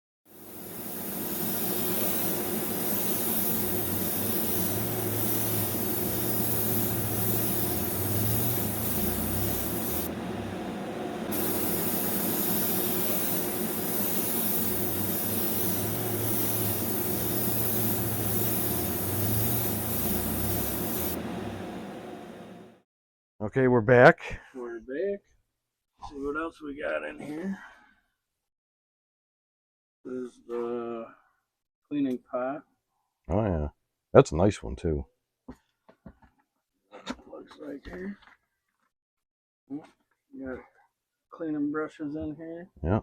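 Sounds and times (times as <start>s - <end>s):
compressed air spraying hiss: 0.3s - 22.7s
low hum: 0.6s - 22.7s.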